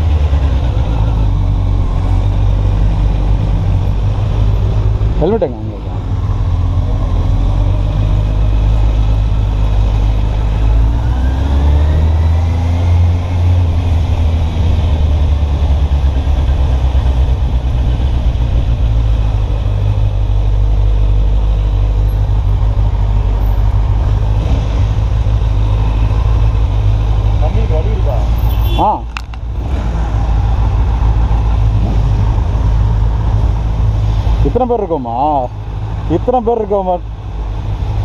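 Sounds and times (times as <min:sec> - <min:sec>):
motorcycle engine accelerating: 0:00.0 - 0:28.4.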